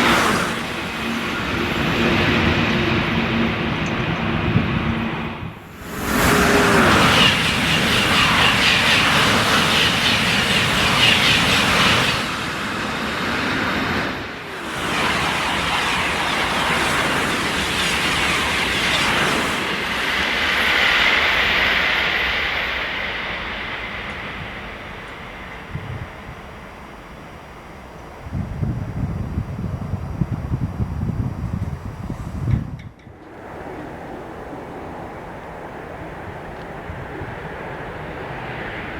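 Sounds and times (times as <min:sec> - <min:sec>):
high-speed train passing: 0:00.0 - 0:38.9
train wheels squealing: 0:05.7 - 0:28.2.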